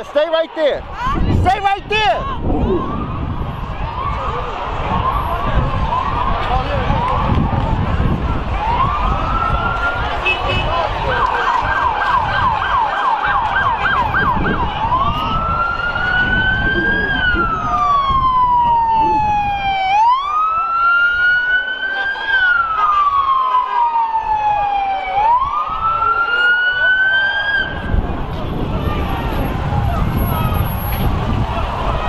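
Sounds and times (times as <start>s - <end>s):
police siren: 2.4s - 32.0s.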